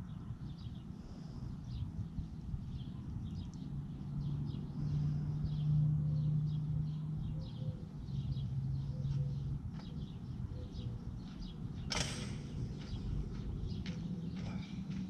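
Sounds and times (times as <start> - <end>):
low outdoor rumble: 0.0 - 15.0
small birds chirping: 0.0 - 15.0
steady low hum: 0.0 - 15.0
sharp click: 11.9 - 12.6.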